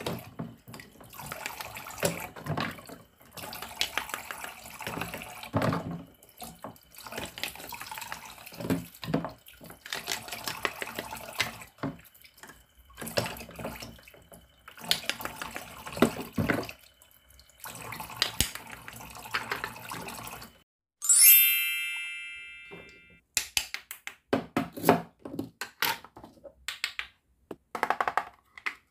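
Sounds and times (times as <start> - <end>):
water running into plastic basin: 0.0 - 20.6.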